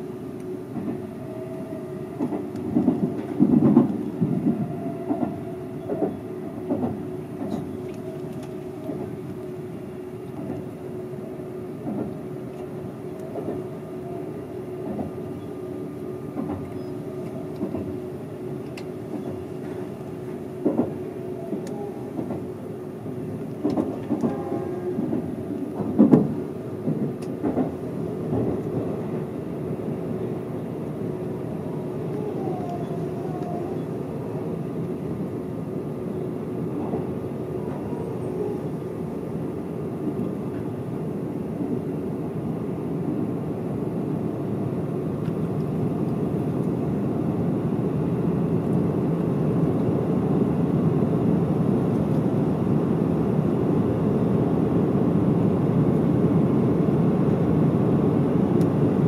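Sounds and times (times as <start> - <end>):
train running noise with hum: 0.0 - 59.0.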